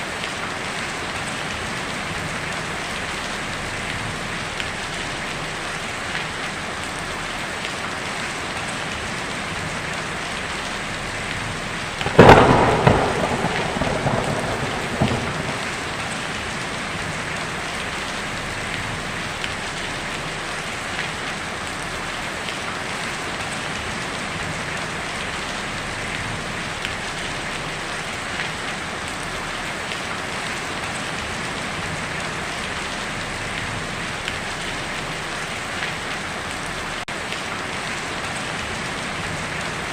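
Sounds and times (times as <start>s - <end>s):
heavy rain on a tin roof: 0.0s - 39.9s
thunderclap rumbling: 12.0s - 18.9s.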